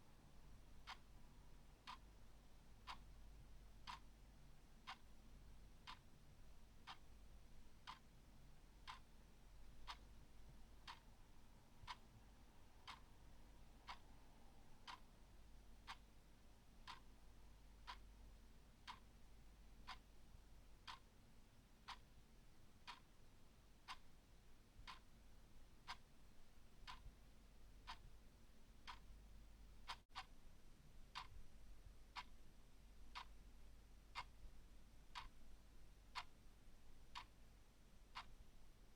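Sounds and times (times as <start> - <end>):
faint low hum: 0.0 - 38.9
clock ticking: 0.8 - 3.1, 3.8 - 15.2, 15.8 - 20.2, 20.8 - 21.2, 21.8 - 22.1, 22.8 - 23.2, 23.8 - 24.2, 24.8 - 27.2, 27.8 - 28.2, 28.8 - 30.3, 31.1 - 31.4, 33.1 - 33.4, 34.1 - 34.4, 35.1 - 35.4, 36.1 - 36.3, 37.1 - 37.4, 38.1 - 38.4.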